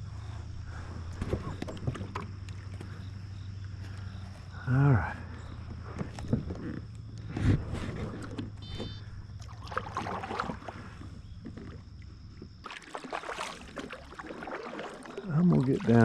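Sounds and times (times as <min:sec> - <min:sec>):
steady low hum: 0:00.0 - 0:16.0
knocks and scrapes against kayak hull: 0:00.7 - 0:04.5, 0:05.2 - 0:16.0
water swishes: 0:07.4 - 0:16.0.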